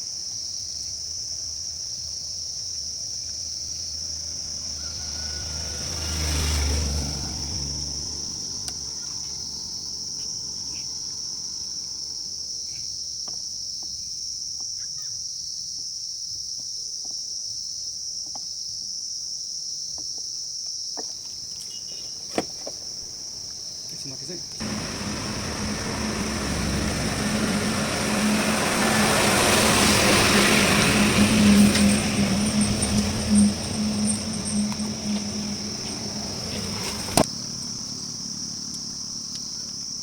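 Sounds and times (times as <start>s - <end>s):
insects droning: 0.0s - 40.0s
motor vehicle passing: 3.6s - 12.3s, 24.4s - 40.0s.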